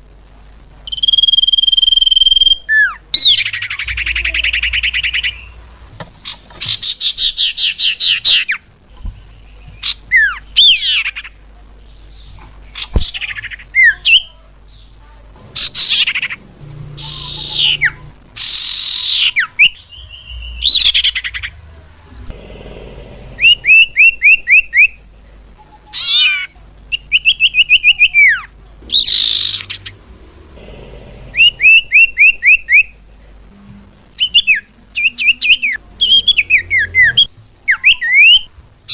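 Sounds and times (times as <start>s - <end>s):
bird chirps whistles and trills: 0.9s - 5.6s, 17.0s - 21.5s, 34.2s - 38.5s.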